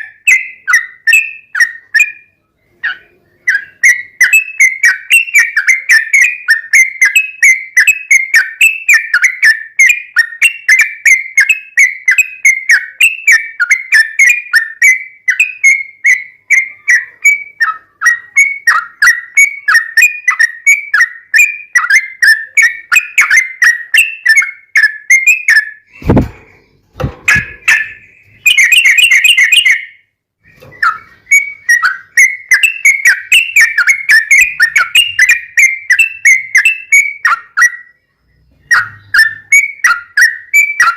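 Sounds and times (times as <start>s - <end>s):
bird whistling repeated notes: 0.0s - 40.9s
sharp thumps: 25.9s - 28.1s.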